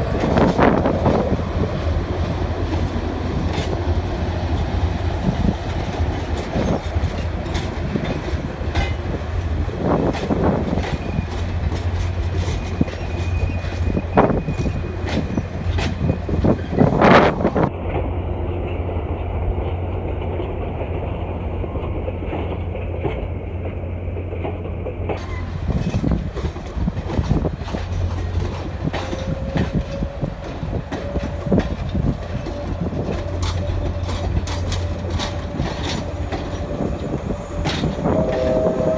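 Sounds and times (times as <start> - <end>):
wheels clicking over rail joints: 0.0 - 17.3, 21.8 - 38.9
train cars rumbling: 0.0 - 38.9.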